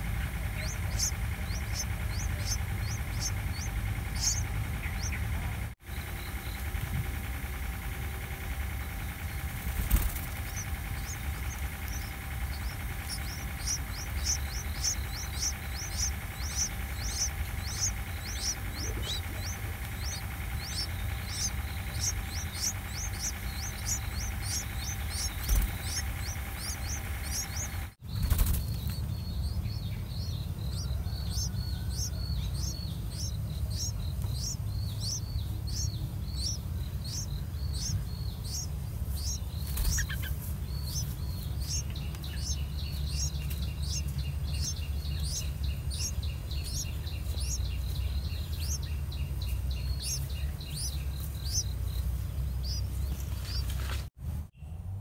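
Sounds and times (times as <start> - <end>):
high thin bird chirps: 0.0 - 5.3, 8.7 - 54.0
low steady rumble: 0.0 - 55.0.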